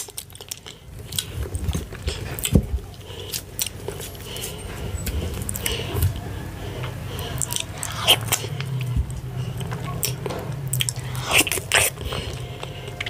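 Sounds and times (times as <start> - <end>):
steady low hum: 0.0 - 13.0
wet chewing: 0.0 - 13.0
mouth clicks and smacks: 7.4 - 13.0.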